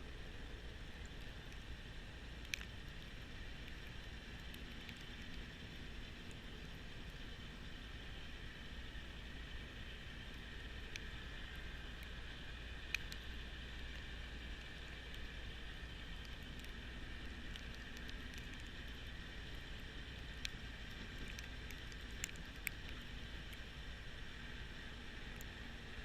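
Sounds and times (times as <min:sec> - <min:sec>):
sharp ticks: 0:02.4 - 0:06.4, 0:12.8 - 0:24.0.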